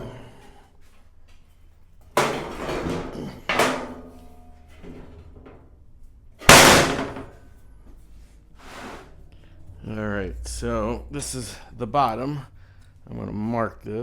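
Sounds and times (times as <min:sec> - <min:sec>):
steel plate banging: 0:06.4 - 0:07.4.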